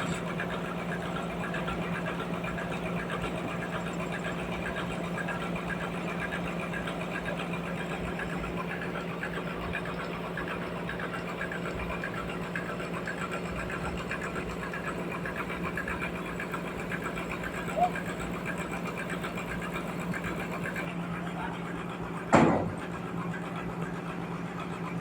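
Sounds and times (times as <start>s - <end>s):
constant low hum: 0.0s - 25.0s
sawmill machinery running: 0.0s - 25.0s.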